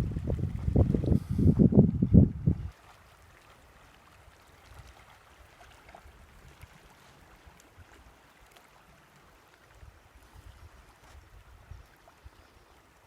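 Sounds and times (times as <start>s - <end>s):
low wind rumble: 0.0s - 2.8s
water lapping: 0.0s - 13.0s.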